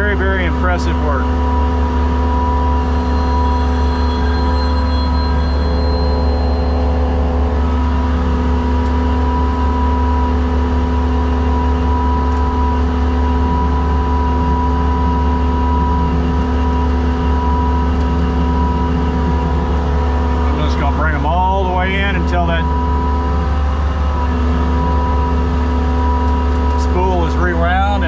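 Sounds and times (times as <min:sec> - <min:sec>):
skid steer engine running: 0:00.0 - 0:28.0
winch whine: 0:00.0 - 0:28.0.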